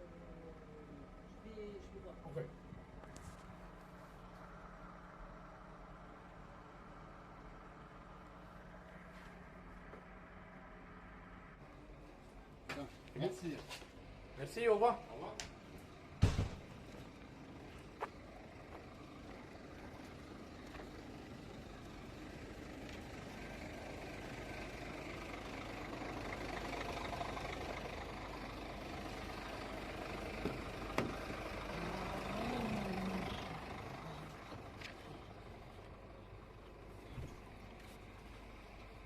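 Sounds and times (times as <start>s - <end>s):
heavy truck engine running: 15.5s - 39.0s.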